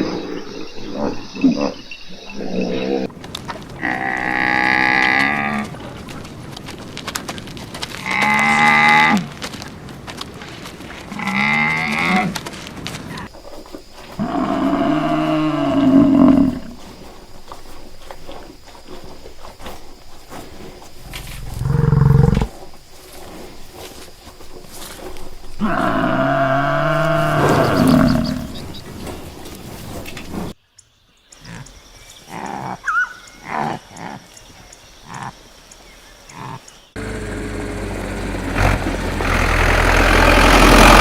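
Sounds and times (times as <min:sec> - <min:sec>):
long low animal calls: 0:13.0 - 0:19.2, 0:20.3 - 0:22.7, 0:25.0 - 0:29.0, 0:36.3 - 0:41.0.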